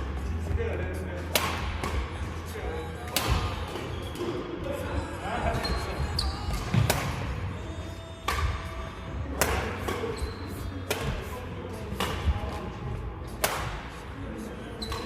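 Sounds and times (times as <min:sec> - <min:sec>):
racket hitting ball: 0:01.3 - 0:02.0, 0:06.5 - 0:07.2, 0:08.2 - 0:08.7, 0:09.3 - 0:10.1, 0:10.8 - 0:11.3, 0:11.9 - 0:12.6, 0:13.4 - 0:13.8.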